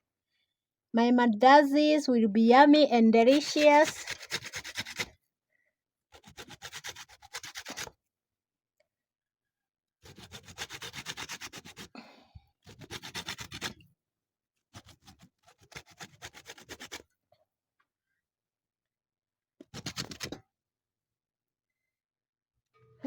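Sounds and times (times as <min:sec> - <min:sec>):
grater scraping peel: 0:03.3 - 0:05.1, 0:06.1 - 0:08.0, 0:10.0 - 0:11.9, 0:12.6 - 0:13.8, 0:14.7 - 0:17.1, 0:19.6 - 0:20.4.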